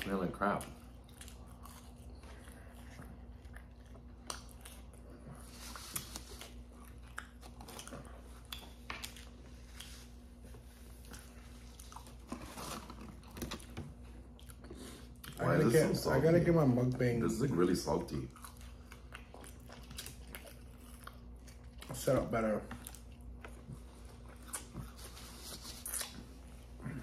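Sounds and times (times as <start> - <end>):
people biting and chewing food: 0.0 - 16.0, 17.3 - 27.0.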